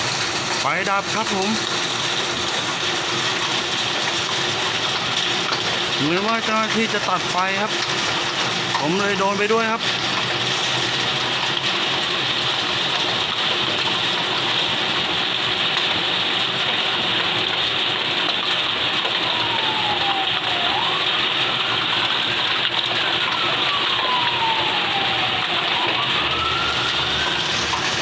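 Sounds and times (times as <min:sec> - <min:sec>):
rushing water: 0:00.0 - 0:28.0
distant siren wailing: 0:03.3 - 0:14.4, 0:18.0 - 0:28.0.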